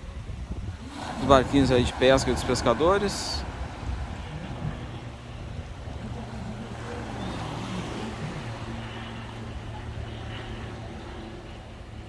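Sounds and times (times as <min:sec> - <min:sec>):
boat engine humming: 0:00.0 - 0:12.0
water noise: 0:00.0 - 0:12.0
wind: 0:00.0 - 0:12.0.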